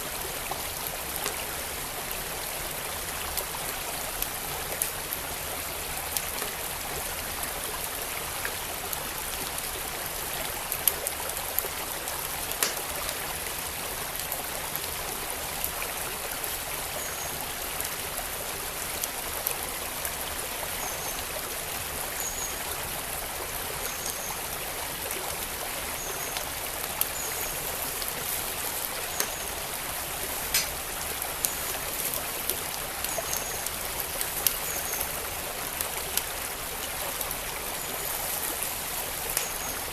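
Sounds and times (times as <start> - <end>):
stream flowing: 0.0 - 39.9
wood fire crackling: 12.5 - 13.2, 26.4 - 35.1.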